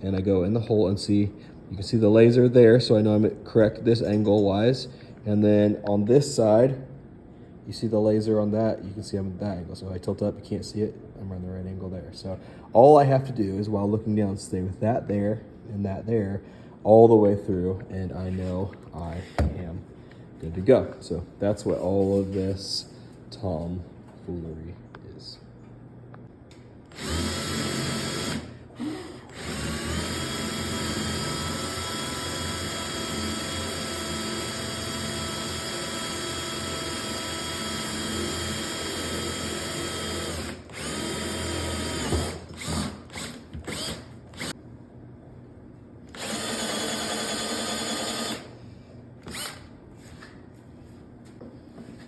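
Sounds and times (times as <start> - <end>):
electric drill boring into wood: 26.9 - 28.5, 29.2 - 44.5, 46.1 - 48.5, 49.2 - 49.6.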